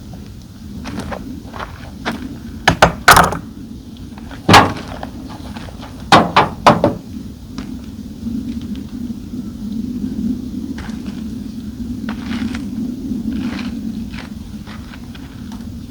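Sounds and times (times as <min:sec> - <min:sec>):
knocks and clunks of hard gear: 0:02.7 - 0:03.5, 0:04.4 - 0:07.0.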